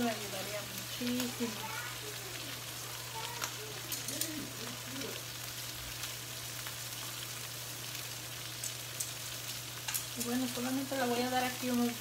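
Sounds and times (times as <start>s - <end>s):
food sizzling in oil: 0.0s - 12.0s
metal tongs clicking on pan: 3.4s - 4.4s, 8.6s - 10.6s.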